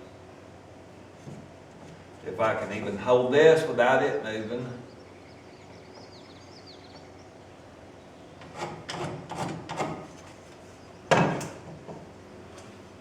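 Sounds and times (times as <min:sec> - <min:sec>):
scraping against wood: 0:08.4 - 0:12.0.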